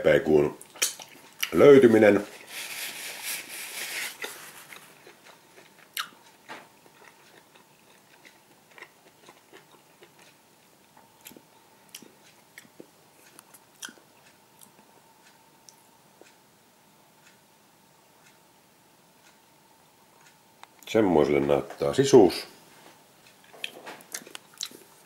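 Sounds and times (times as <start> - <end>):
soft hiss: 0.1 - 5.0
wet mouth clicks chewing: 23.6 - 24.9.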